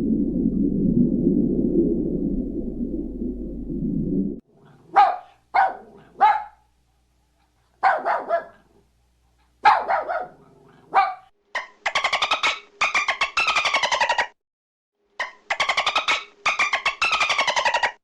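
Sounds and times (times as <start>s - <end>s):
dog barking: 4.6s - 6.7s, 7.6s - 8.8s, 9.6s - 11.3s.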